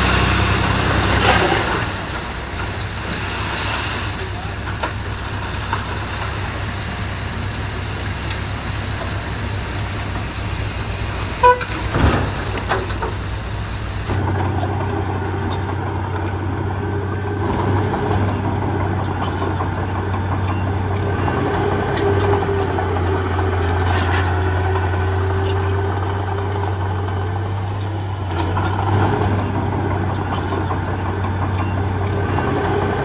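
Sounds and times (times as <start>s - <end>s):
heavy diesel engine running: 0.0s - 33.0s
short horn toot: 11.4s - 11.9s.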